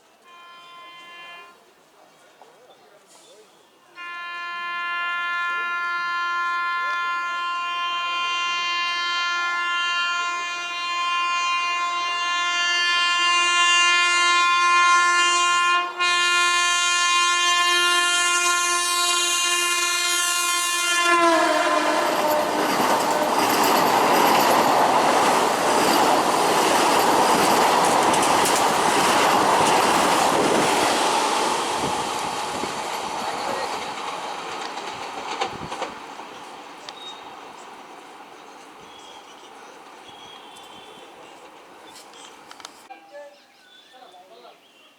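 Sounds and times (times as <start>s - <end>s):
train horn blast: 0.2s - 1.7s, 3.9s - 25.8s
train wheels clickety-clack: 21.8s - 42.9s.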